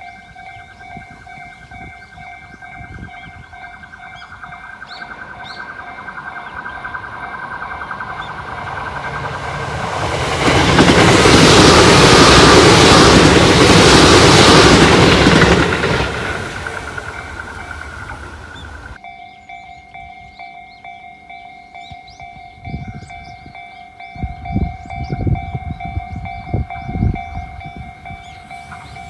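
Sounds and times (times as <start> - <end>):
bird chirps: 0.0 - 9.2, 17.0 - 29.0
electric train passing: 0.0 - 29.0.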